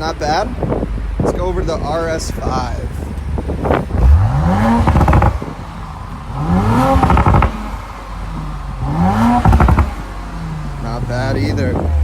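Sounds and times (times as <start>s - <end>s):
car engine revving with crackle: 0.6s - 12.0s.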